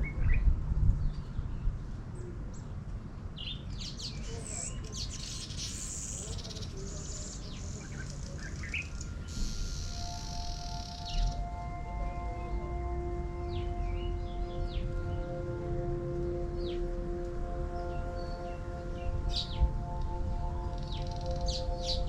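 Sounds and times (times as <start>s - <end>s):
steady low rumble: 0.0s - 3.4s, 6.8s - 22.0s
small birds chirping: 3.4s - 11.6s, 20.8s - 22.0s
sustained ringing chord: 7.4s - 22.0s
buzzy high trill: 8.9s - 14.4s.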